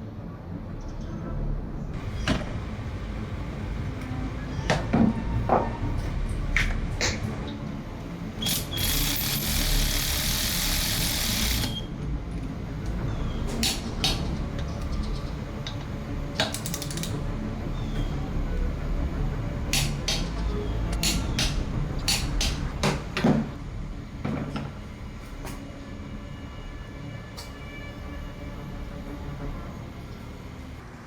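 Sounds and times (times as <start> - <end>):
hand tool clicks: 16.4 - 17.2.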